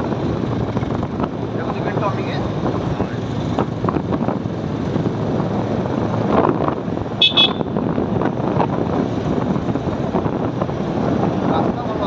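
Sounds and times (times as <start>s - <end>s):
wind and road noise: 0.0s - 12.0s
vehicle horn beeps: 7.2s - 7.8s.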